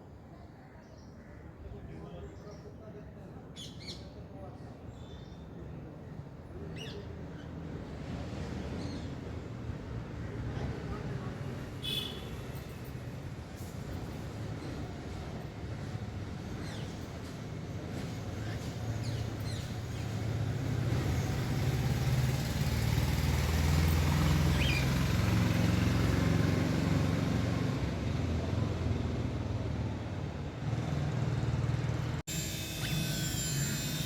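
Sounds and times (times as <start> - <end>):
passing motor engine: 19.7 - 34.0.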